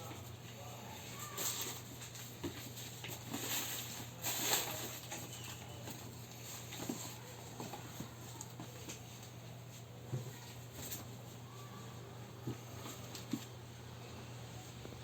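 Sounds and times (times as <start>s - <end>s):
rustling: 1.1s - 11.8s.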